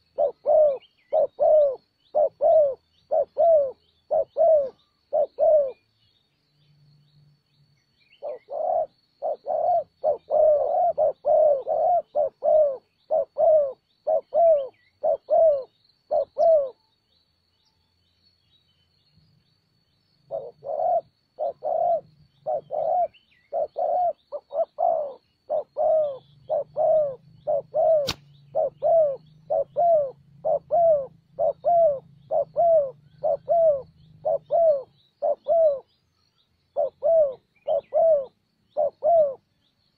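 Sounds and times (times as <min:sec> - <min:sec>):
doves cooing: 0:00.0 - 0:05.9, 0:08.2 - 0:16.8, 0:20.3 - 0:36.0, 0:36.6 - 0:39.5
sharp click: 0:28.0 - 0:28.3.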